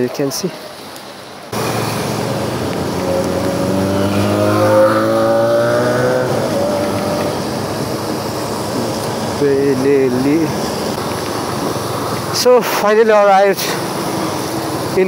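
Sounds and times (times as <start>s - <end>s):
motorcycle engine accelerating: 1.5s - 12.0s.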